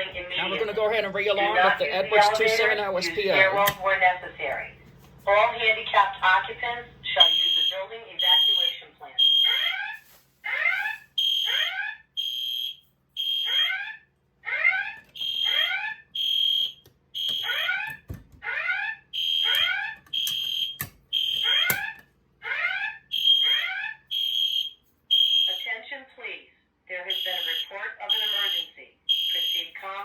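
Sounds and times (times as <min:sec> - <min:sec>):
fire alarm horn tones: 0:07.2 - 0:25.8, 0:27.1 - 0:30.0.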